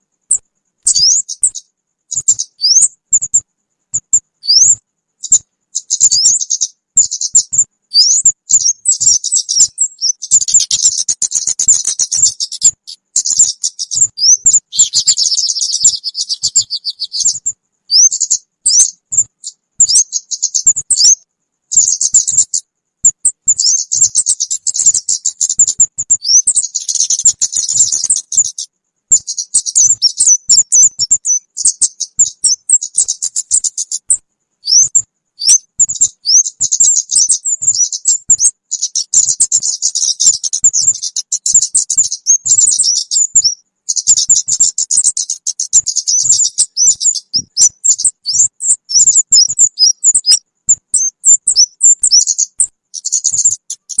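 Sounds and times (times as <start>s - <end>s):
bird lure chirps: 0.3s - 3.4s, 4.0s - 54.0s.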